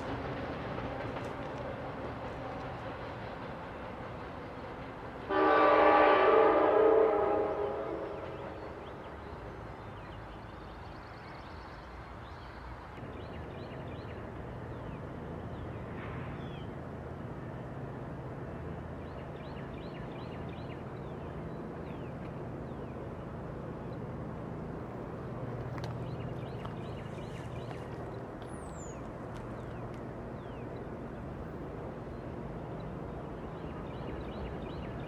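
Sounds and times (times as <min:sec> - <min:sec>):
train rumbling: 0:00.0 - 0:35.0
train horn: 0:05.3 - 0:08.8.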